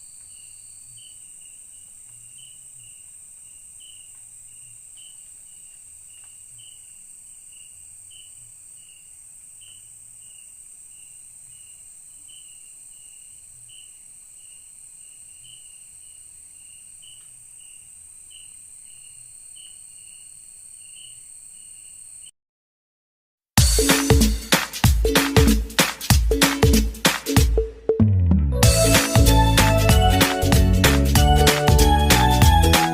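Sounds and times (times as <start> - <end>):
crickets droning: 0.0 - 22.3
short insect chirp: 0.0 - 22.4.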